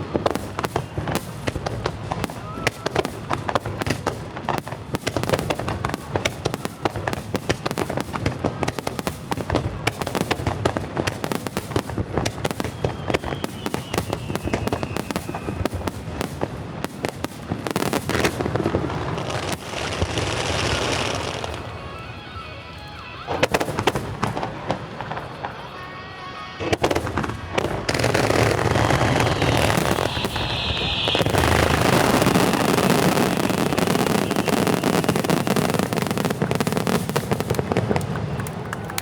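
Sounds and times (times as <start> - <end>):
falling firework whistle: 0.0 - 4.0, 11.2 - 37.8
fireworks hissing: 0.0 - 37.6
fireworks bangs and crackles: 0.0 - 39.0.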